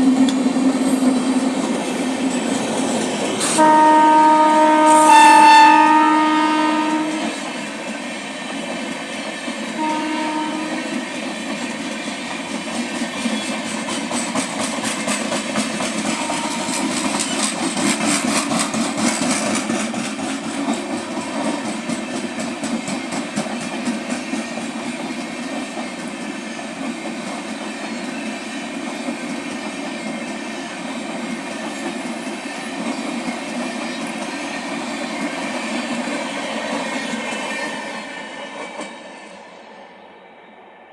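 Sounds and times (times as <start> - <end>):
train rumble and wheel clatter: 0.0 - 40.9
train horn blast: 3.4 - 7.4, 9.7 - 11.0, 16.0 - 17.1.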